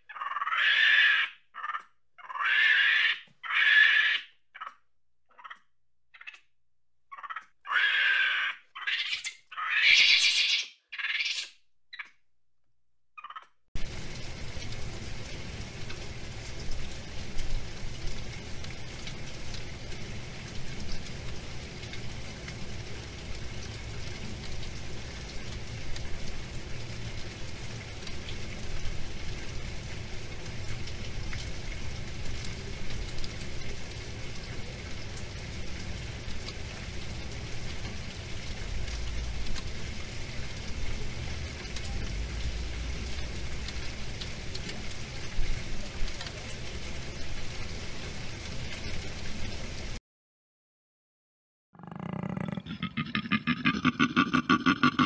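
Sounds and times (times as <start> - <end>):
low rumble: 41.7 - 44.0.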